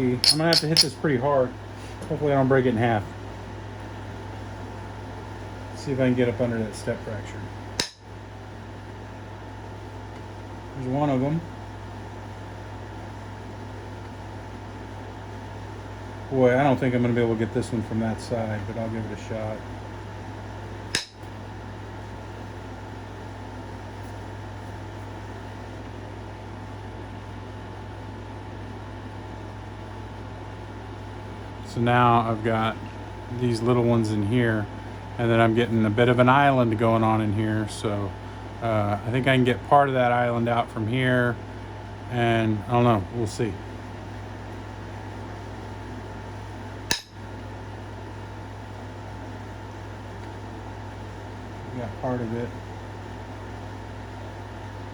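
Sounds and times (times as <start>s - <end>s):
steady low hum with hiss: 0.0s - 54.9s.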